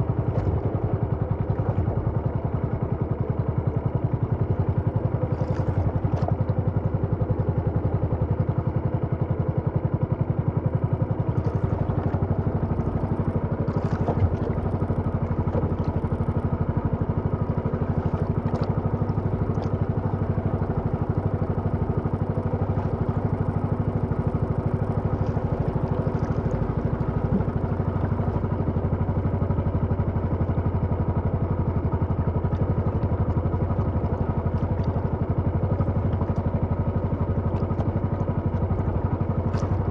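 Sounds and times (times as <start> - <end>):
small engine running: 10.8 - 39.9.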